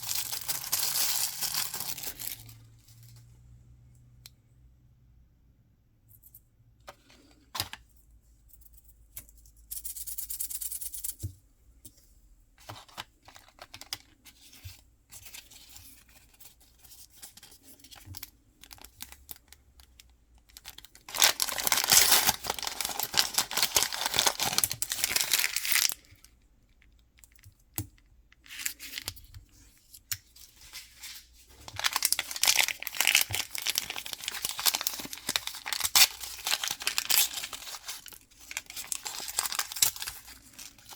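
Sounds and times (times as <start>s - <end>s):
packaging tearing and crinkling: 0.0s - 2.6s, 20.6s - 26.0s, 31.6s - 40.9s.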